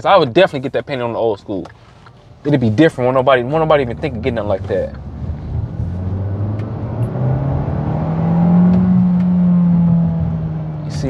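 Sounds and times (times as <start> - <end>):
car engine accelerating: 2.4 - 11.0.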